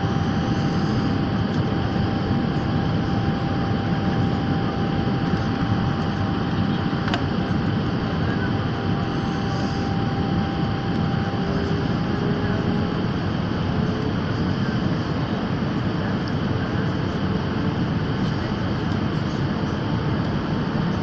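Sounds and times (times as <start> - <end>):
airliner cabin engine roar: 0.0 - 21.0
faint steady whine: 0.0 - 21.0
click: 7.0 - 7.3.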